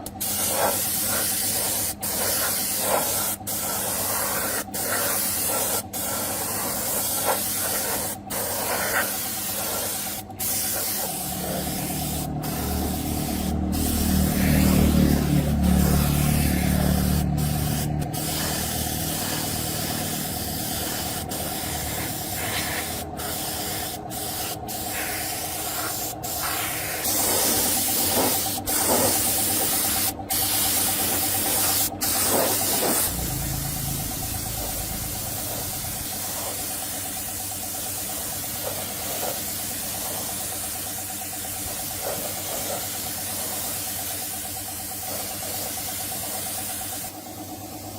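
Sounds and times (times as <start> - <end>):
high-pressure spray hissing: 0.0 - 47.8
low motor hum: 10.2 - 23.2, 27.2 - 37.3.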